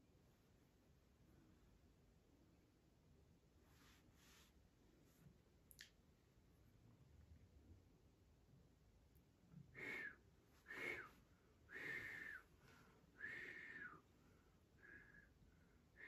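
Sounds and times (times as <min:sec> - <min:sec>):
man whistling softly: 0:09.8 - 0:12.5, 0:13.2 - 0:14.0.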